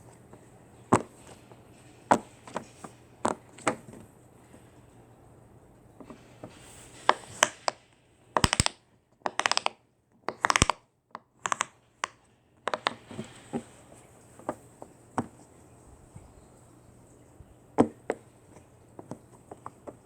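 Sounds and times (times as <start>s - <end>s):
sharp clicks and taps: 7.0s - 13.1s.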